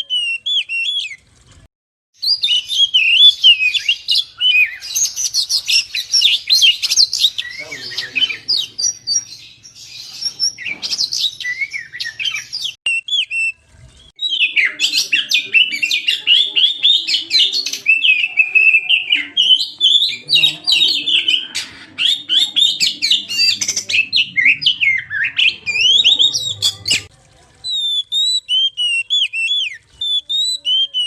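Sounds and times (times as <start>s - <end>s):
bird singing whistled notes: 2.2s - 21.4s, 27.7s - 31.0s.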